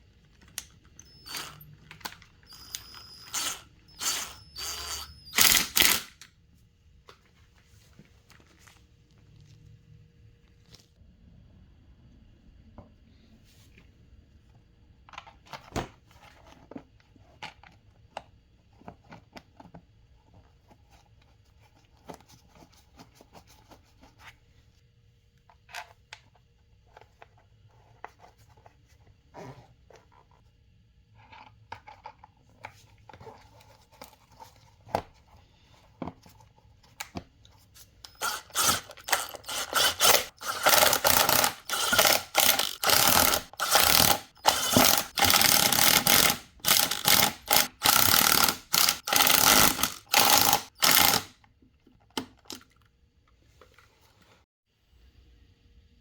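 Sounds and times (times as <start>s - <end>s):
tools clicking and scraping: 0.4s - 6.3s, 37.8s - 51.3s
ratchet wrench clicking: 2.5s - 6.3s, 38.1s - 51.3s.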